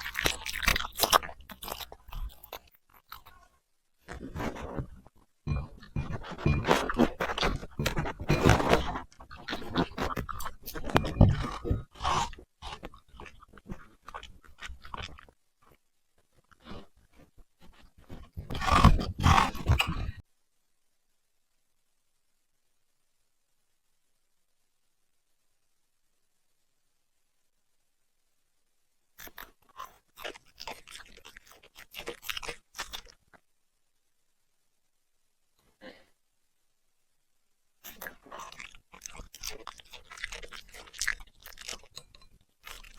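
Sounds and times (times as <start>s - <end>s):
puppy chewing food: 0.0s - 15.8s, 16.4s - 20.2s, 29.2s - 33.4s, 37.8s - 42.9s.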